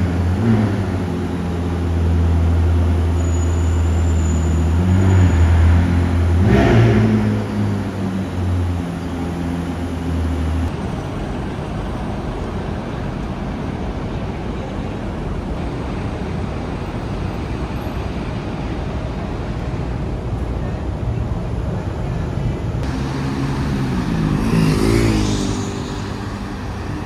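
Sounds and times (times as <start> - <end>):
car engine running: 0.0 - 10.8
engine revving: 0.0 - 10.8, 22.8 - 27.0
road traffic noise: 0.0 - 27.0.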